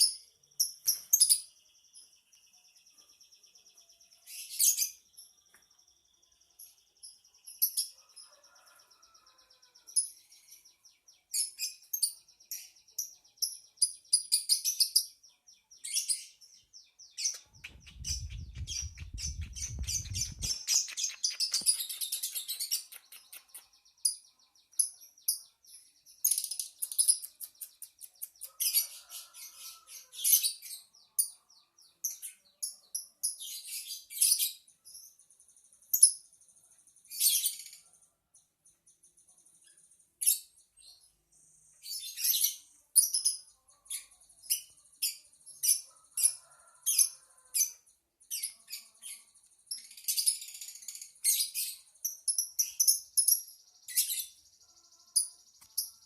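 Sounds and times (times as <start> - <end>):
bird chirping chatter: 0.0 - 56.0
low rumble: 17.6 - 20.6.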